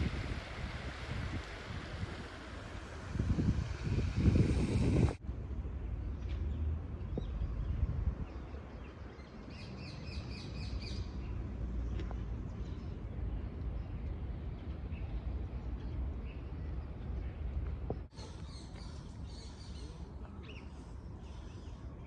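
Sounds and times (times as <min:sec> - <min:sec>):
wind buffeting microphone: 0:00.0 - 0:05.2, 0:07.0 - 0:09.0.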